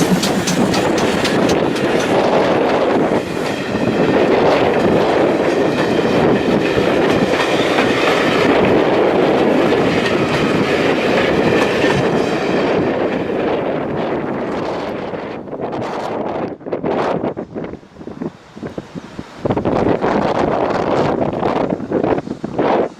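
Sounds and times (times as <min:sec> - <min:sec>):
train wheels clattering over rail joints: 0:00.0 - 0:13.2.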